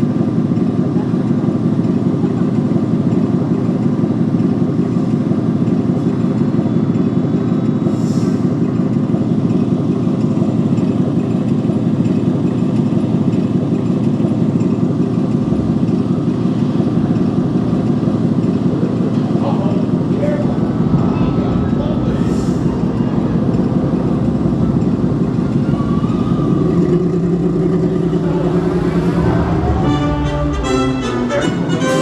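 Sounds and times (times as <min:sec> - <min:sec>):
loud low rumble: 0:12.6 - 0:32.0.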